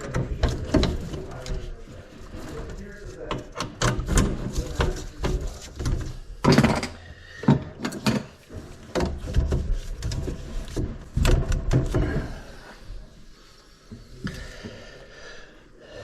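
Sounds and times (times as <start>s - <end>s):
knocks and clunks on drain pipe: 0.0s - 1.7s, 3.2s - 12.4s.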